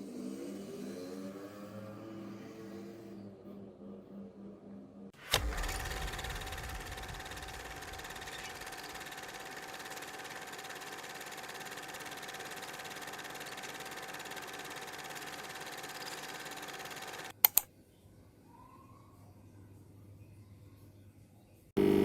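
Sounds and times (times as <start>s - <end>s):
sharp clicks: 5.2s - 10.6s, 11.8s - 17.7s
mechanical hum with faint whine: 5.2s - 17.4s, 18.5s - 22.0s.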